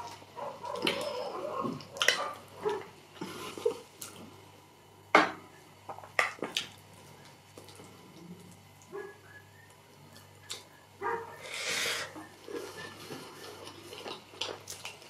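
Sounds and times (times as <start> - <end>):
chewing food: 6.2 - 10.8, 12.1 - 15.0.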